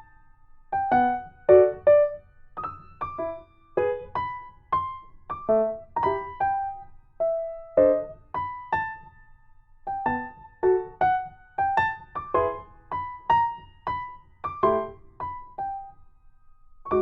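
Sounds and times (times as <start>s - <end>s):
electric piano tune: 0.7s - 9.2s, 9.9s - 15.9s.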